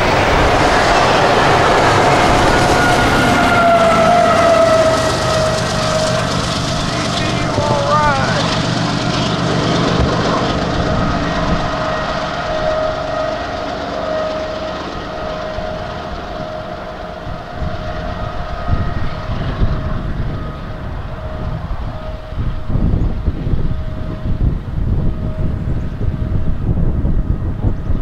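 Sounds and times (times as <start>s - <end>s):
diesel locomotive engine running: 0.0s - 28.0s
low train rumble: 0.0s - 28.0s
high held tone: 2.4s - 19.0s.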